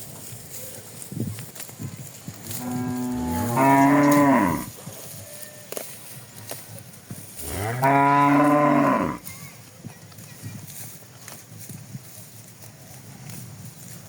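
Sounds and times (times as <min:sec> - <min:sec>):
cattle mooing: 0:02.6 - 0:04.7, 0:07.4 - 0:09.2.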